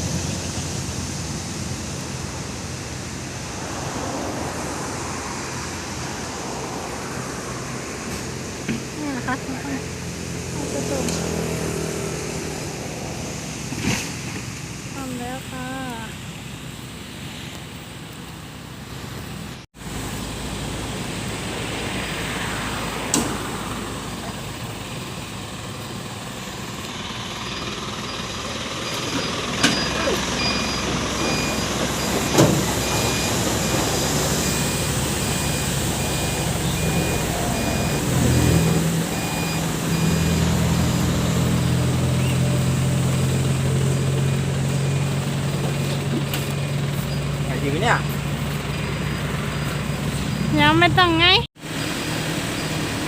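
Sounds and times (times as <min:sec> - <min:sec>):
tow truck engine running: 0:00.0 - 0:53.0
reversing alarm beeping: 0:27.5 - 0:41.0.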